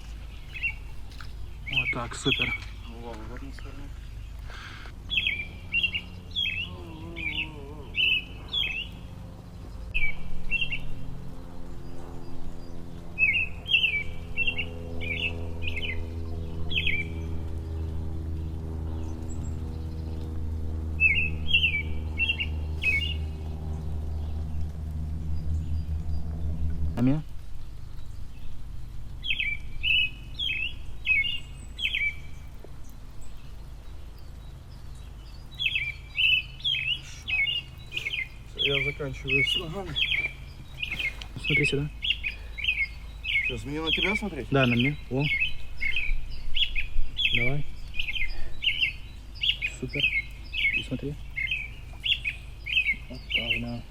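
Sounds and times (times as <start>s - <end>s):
low steady hum: 0.0s - 53.9s
small birds chirping: 0.0s - 53.9s
songbird singing high notes: 5.1s - 9.0s, 21.0s - 24.4s, 35.0s - 53.9s.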